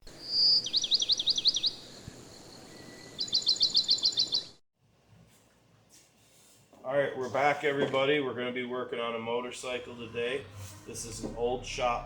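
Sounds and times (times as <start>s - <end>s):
songbird singing: 0.0s - 4.6s.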